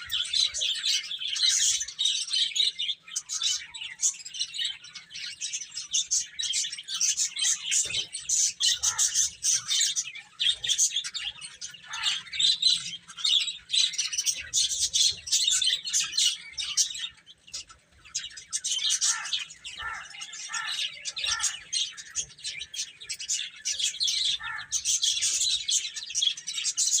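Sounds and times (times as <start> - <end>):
baby chicks peeping: 0.0 - 27.0.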